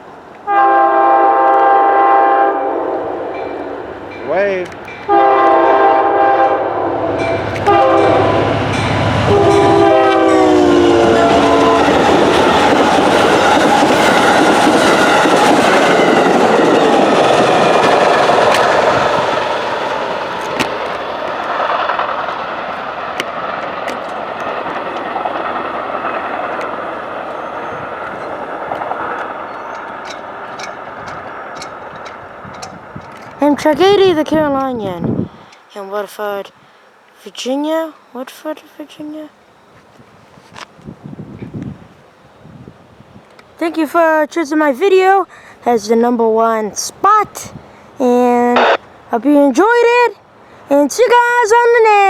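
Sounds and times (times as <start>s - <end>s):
wheels rumbling on rail: 0.0s - 35.8s, 37.8s - 52.0s
train rushing past: 0.0s - 52.0s
train horn blasts: 0.4s - 4.4s, 5.0s - 12.7s
sharp rail clicks: 3.3s - 5.1s, 7.2s - 7.8s, 11.0s - 33.6s.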